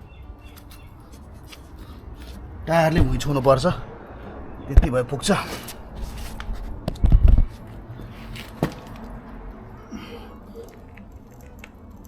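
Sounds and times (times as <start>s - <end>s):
low thudding rumble: 2.0s - 8.0s.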